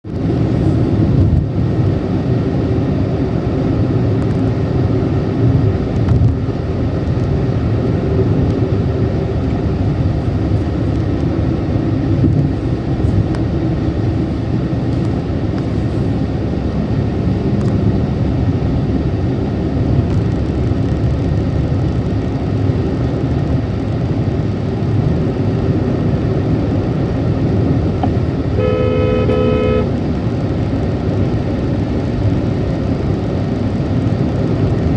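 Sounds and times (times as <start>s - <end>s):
car engine at high speed: 0.0s - 34.9s
road noise: 0.0s - 34.9s
car horn: 28.5s - 30.0s.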